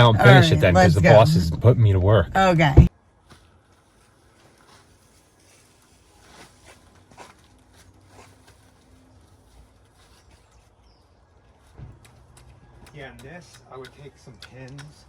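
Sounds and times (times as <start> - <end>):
low steady hum: 0.0 - 2.9
faint clicks and rustles: 3.2 - 10.9.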